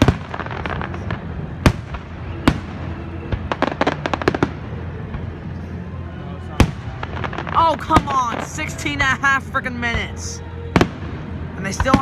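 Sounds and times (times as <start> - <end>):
firework booms: 0.0 - 5.3
low rumble: 0.0 - 12.0.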